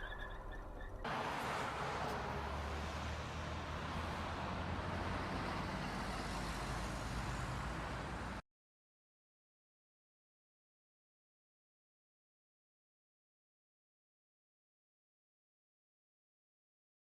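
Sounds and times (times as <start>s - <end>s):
vehicle road noise: 0.0s - 8.4s
traffic hiss: 1.1s - 8.4s.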